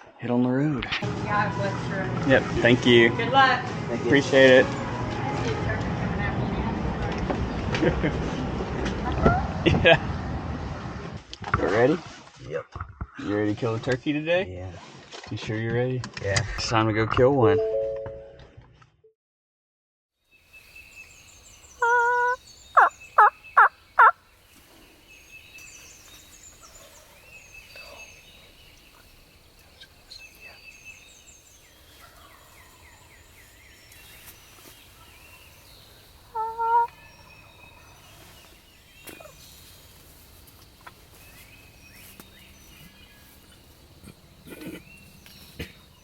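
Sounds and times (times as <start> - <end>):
songbirds chirping faintly: 20.2 - 46.0
turkey gobbling: 21.8 - 24.2, 36.2 - 37.0.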